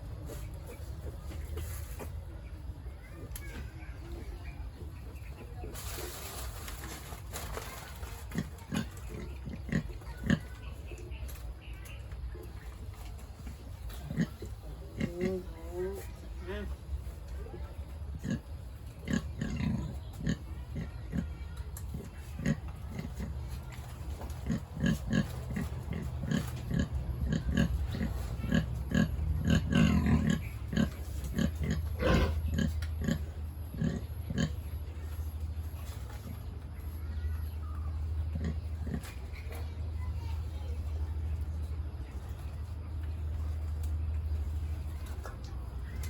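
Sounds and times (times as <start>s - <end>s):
sow grunting: 13.9s - 16.8s, 18.1s - 23.7s, 24.4s - 34.8s.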